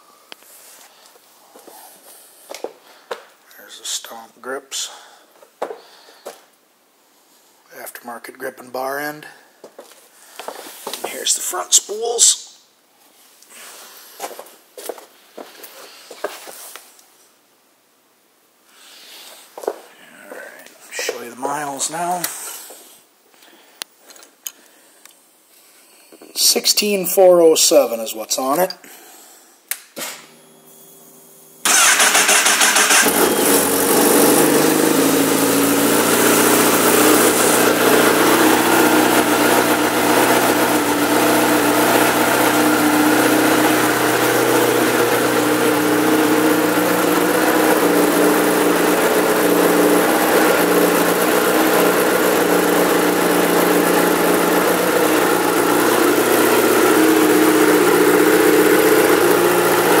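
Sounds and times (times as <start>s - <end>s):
motorcycle engine starting and idling: 31.6s - 60.0s.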